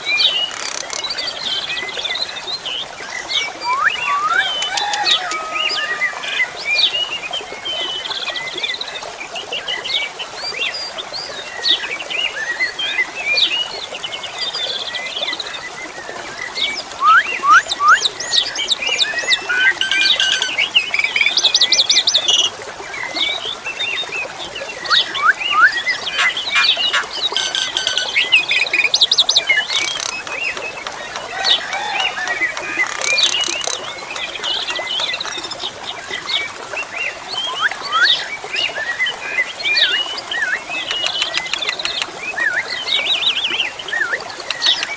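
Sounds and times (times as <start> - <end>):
flowing water hiss: 0.0 - 44.9
starling singing: 3.6 - 5.8, 19.1 - 22.4, 24.8 - 28.8.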